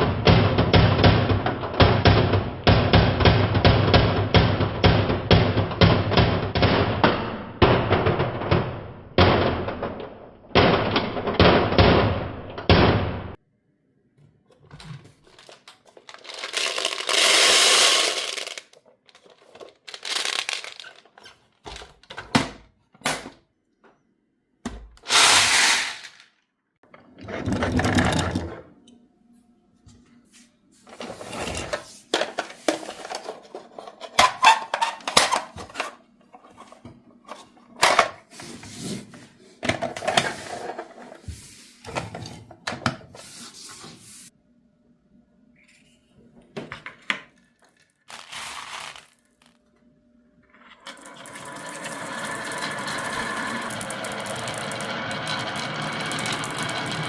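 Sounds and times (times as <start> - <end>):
marbles rolling on wooden track: 15.4 - 21.1, 25.1 - 26.2, 27.2 - 28.6, 50.8 - 57.0
marbles clicking and clacking: 16.1 - 18.8, 50.9 - 57.0.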